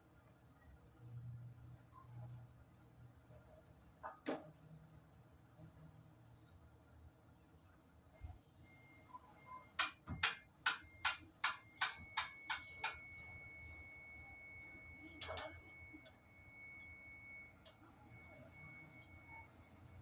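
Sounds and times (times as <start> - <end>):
faint steady high tone: 8.6 - 20.0.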